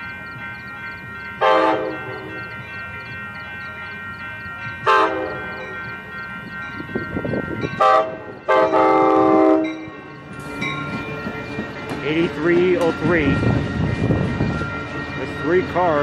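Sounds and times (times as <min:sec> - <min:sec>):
crossing bells ringing: 0:00.0 - 0:16.0
train rumble: 0:00.0 - 0:16.0
train horn blasts: 0:01.4 - 0:02.0, 0:04.9 - 0:05.6, 0:07.8 - 0:09.9.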